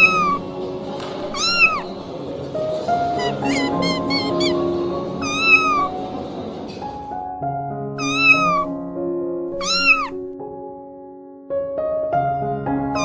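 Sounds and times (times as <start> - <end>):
cat meowing: 0.0 - 0.6, 1.3 - 2.1, 3.2 - 6.0, 8.0 - 8.8, 9.6 - 10.2
soft background music: 0.0 - 13.0.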